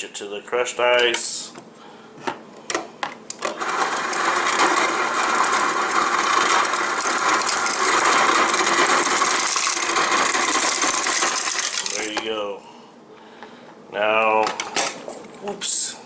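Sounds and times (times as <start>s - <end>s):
ice dispenser grinding and rattling: 3.4s - 12.2s
crushed ice pouring into glass: 3.6s - 12.2s.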